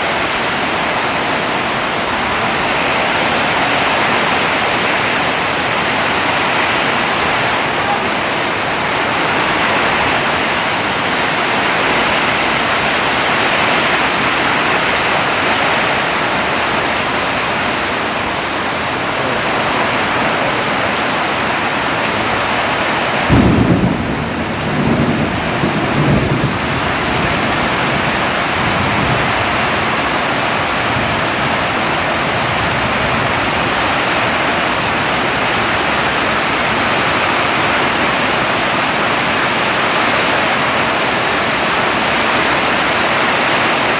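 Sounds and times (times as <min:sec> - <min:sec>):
heavy rain pouring: 0:00.0 - 0:43.9
thunder rumble: 0:19.9 - 0:37.1.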